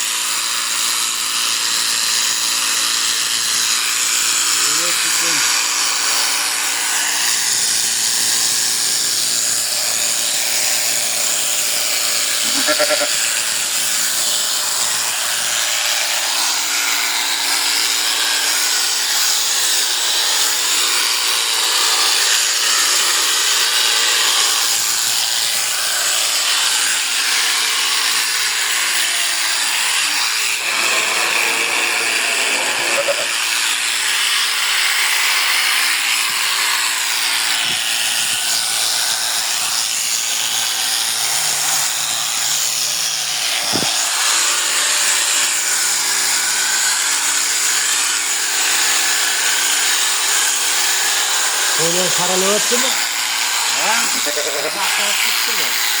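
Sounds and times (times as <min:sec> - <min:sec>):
electric shears buzzing: 0:00.0 - 0:56.0
sheep bleating: 0:12.4 - 0:13.2, 0:32.6 - 0:33.4.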